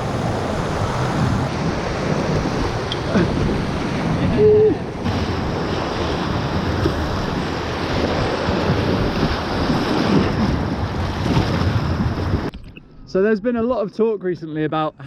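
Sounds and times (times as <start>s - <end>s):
rushing river water: 0.0s - 11.6s
wind buffeting microphone: 0.0s - 13.8s.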